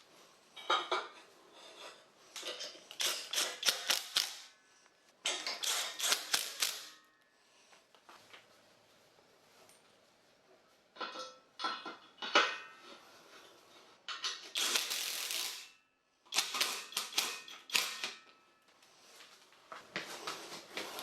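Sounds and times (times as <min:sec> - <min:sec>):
sharp mechanical clicks and knocks: 0:02.4 - 0:04.5, 0:05.2 - 0:07.0, 0:14.1 - 0:15.7, 0:16.3 - 0:18.3.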